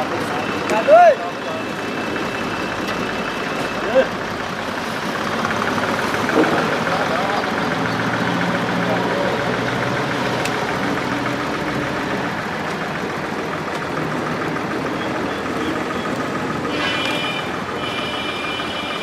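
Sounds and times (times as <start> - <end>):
high-pitched beeping tone: 0.0 - 4.1
truck engine idling: 0.0 - 19.0.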